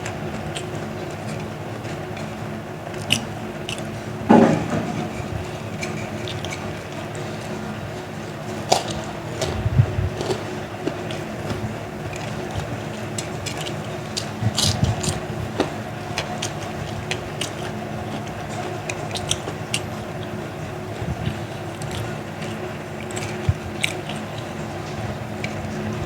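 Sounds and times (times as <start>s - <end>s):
steady tonal hum: 0.0s - 18.9s
chewing crunchy crackers: 0.0s - 26.0s.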